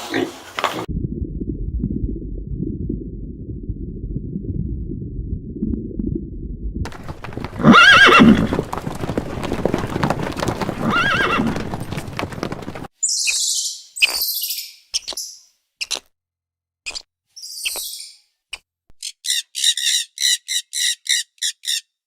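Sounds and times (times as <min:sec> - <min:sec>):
horse neighing: 0:06.9 - 0:12.8.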